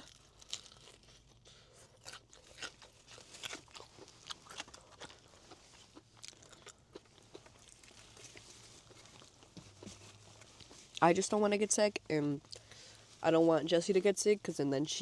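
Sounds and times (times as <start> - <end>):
chewing crunchy food: 0.0 - 11.0.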